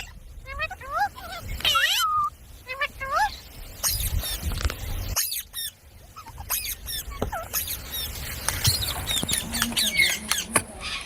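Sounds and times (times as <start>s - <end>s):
parrot chirping and squeaking: 3.8s - 4.5s, 5.1s - 11.0s.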